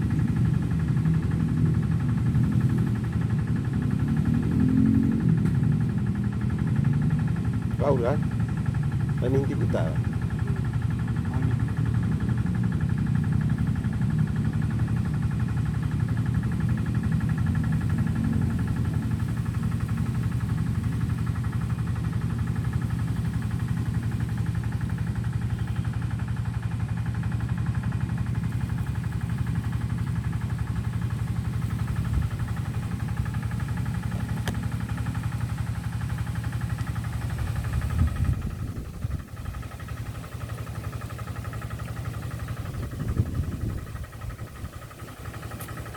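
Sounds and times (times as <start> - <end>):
motor humming: 30.7 - 45.9.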